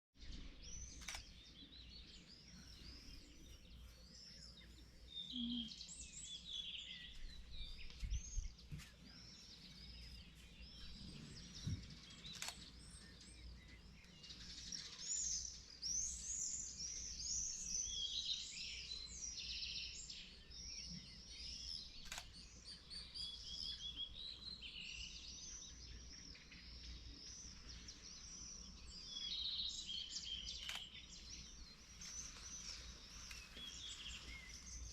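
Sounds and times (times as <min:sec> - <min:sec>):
small birds singing and chirping: 0:00.2 - 0:34.9
brief clicks: 0:00.9 - 0:01.3, 0:12.2 - 0:12.8, 0:22.0 - 0:22.4, 0:30.6 - 0:31.0.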